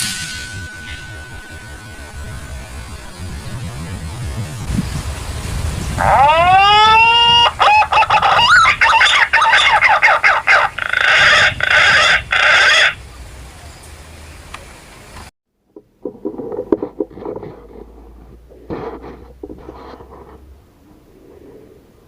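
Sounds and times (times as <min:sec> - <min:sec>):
pigeon whistled calls: 0:06.2 - 0:13.0.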